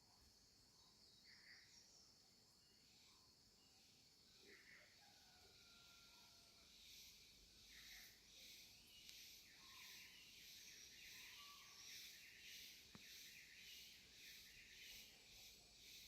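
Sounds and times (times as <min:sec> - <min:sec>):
cicadas buzzing: 0:05.0 - 0:16.0.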